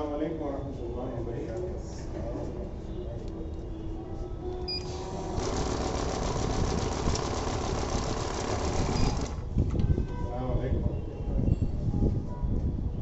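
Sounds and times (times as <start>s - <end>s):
cash counting machine whirring: 4.8s - 9.5s.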